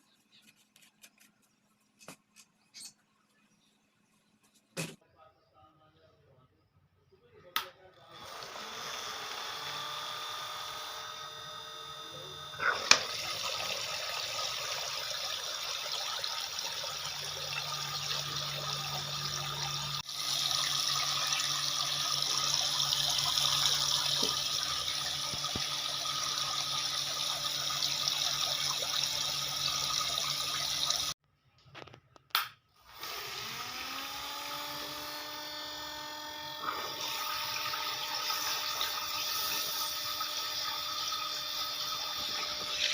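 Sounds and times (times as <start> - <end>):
mini pump whine: 7.3 - 31.2, 32.8 - 42.9.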